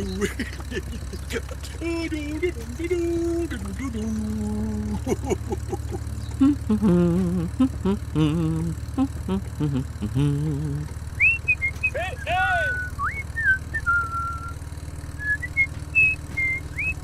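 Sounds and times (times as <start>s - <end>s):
person humming: 0.0s - 11.0s
steady low hum: 0.0s - 17.0s.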